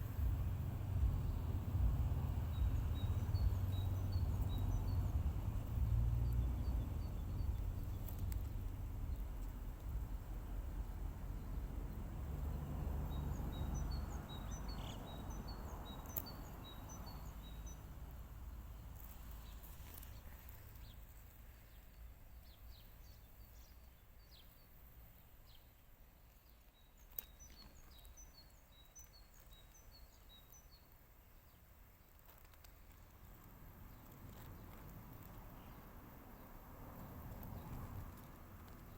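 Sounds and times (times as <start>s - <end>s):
low rumbling background noise: 0.0s - 38.9s
songbird chirping: 0.0s - 38.9s.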